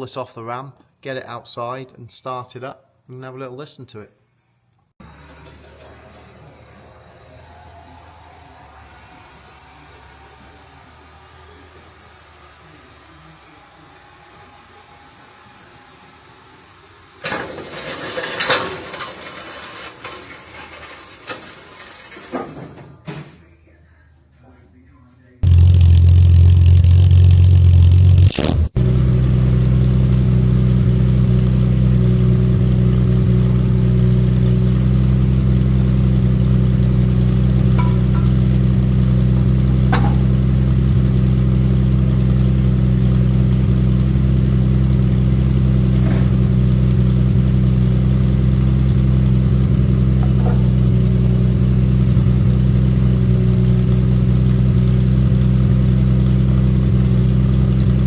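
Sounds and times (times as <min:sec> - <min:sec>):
car engine revving: 0:05.0 - 0:15.5, 0:25.4 - 0:58.0
car engine idling: 0:05.0 - 0:22.1, 0:25.4 - 0:58.0.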